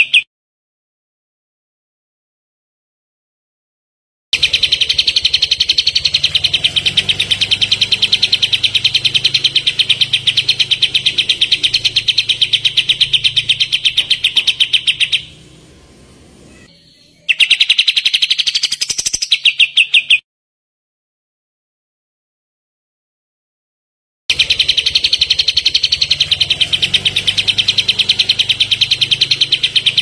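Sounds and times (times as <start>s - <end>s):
bird song rapid rattle: 4.4s - 15.6s, 17.3s - 20.2s, 24.3s - 30.0s.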